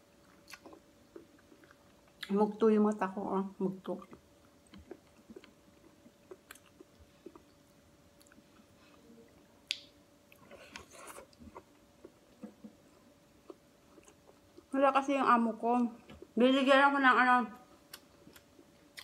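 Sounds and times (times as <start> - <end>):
faint steady hum: 0.0 - 19.0
faint chewing: 0.2 - 3.0, 3.8 - 14.8, 17.8 - 19.0
wet finger clicks picking food: 9.7 - 9.9.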